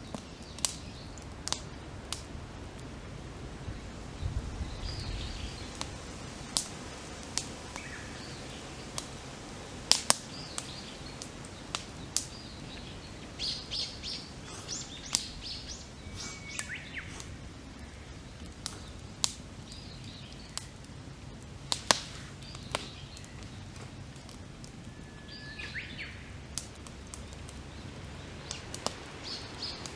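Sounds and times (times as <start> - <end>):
campfire crackling and popping: 0.0 - 29.9
small birds chirping: 0.0 - 29.9.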